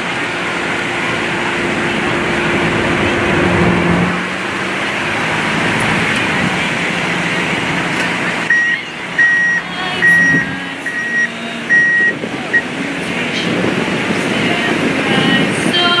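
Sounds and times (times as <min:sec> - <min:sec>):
steady rushing background noise: 0:00.0 - 0:16.0
vehicle reversing alarm beeping: 0:08.2 - 0:12.8.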